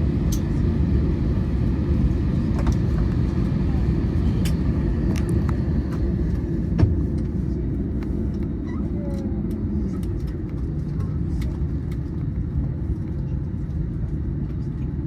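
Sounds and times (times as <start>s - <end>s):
aircraft cabin rumble: 0.0s - 15.0s.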